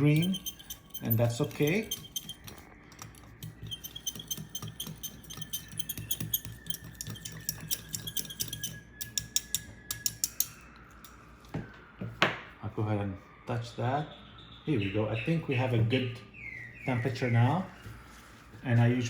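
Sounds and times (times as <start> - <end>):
spoon clinking in dish: 0.0 - 10.6.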